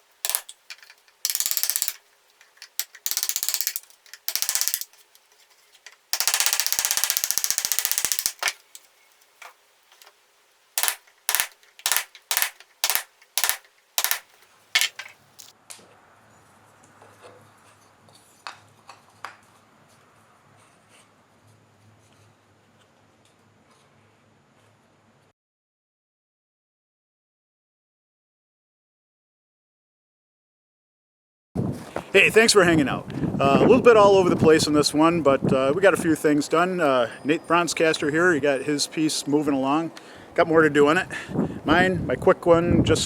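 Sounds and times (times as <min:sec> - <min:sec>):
rapid mechanical ratcheting: 0:00.0 - 0:10.1, 0:10.8 - 0:15.5.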